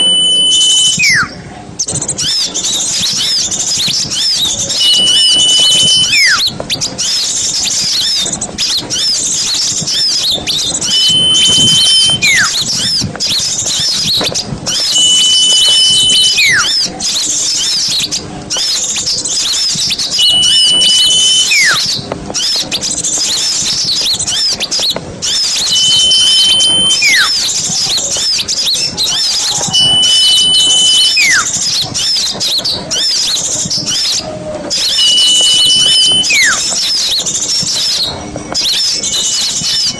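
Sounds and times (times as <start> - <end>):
whistle with falling note: 0.0 - 1.4, 4.7 - 6.5, 10.8 - 12.6, 13.9 - 16.9, 20.1 - 22.5, 25.3 - 27.6, 29.1 - 31.9, 33.9 - 39.9
small birds chirping and chattering: 0.0 - 39.9.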